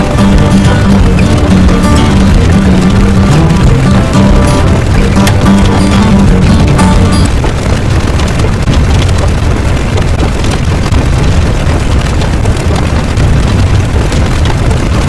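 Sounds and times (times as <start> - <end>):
loud low rumbling: 0.0 - 15.0.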